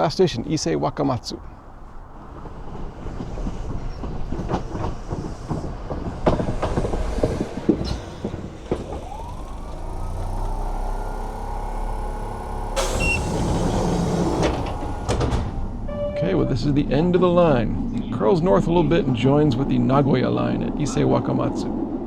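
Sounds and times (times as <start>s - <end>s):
train motor whine: 1.7s - 18.0s
train wheels clacking: 2.0s - 10.4s, 11.0s - 18.1s
hiss burst: 5.2s - 15.9s.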